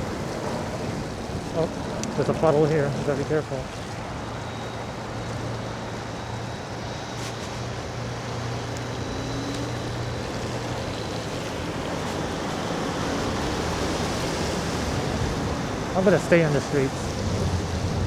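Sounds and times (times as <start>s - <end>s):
tyres on slushy road: 0.0s - 18.0s
wind on microphone: 0.0s - 18.0s.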